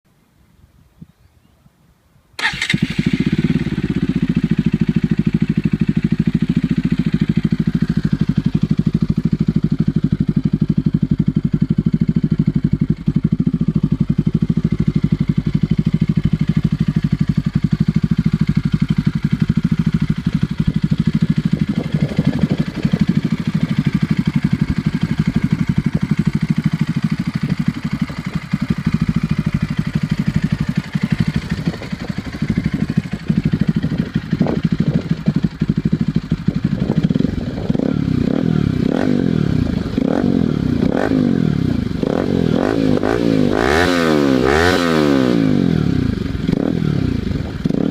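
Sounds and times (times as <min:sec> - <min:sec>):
motorcycle engine idling: 0:02.4 - 0:47.9.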